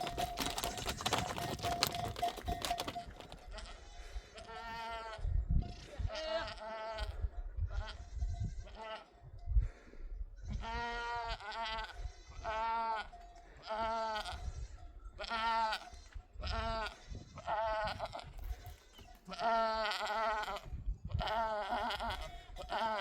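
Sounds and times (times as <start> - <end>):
sheep bleating: 15.2 - 20.6, 21.2 - 23.0.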